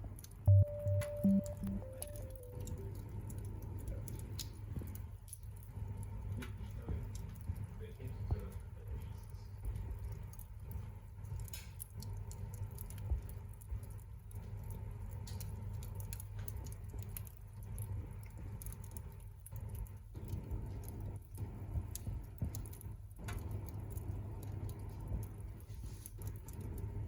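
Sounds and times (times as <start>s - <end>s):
low steady rumble: 0.0s - 7.5s
campfire crackling and popping: 0.0s - 27.0s.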